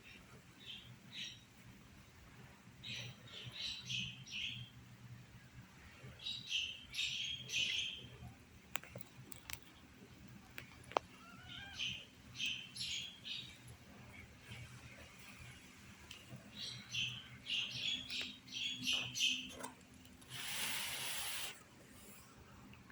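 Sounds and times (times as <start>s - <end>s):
kittens mewing: 11.1s - 12.1s.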